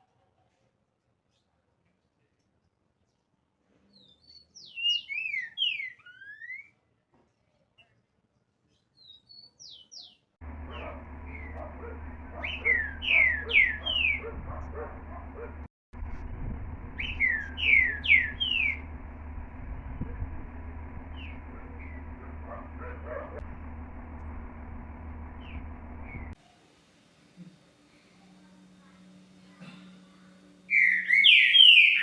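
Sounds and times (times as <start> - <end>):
steady low hum: 10.4 - 32.0
bird singing whistled phrases: 17.0 - 18.8, 30.7 - 32.0.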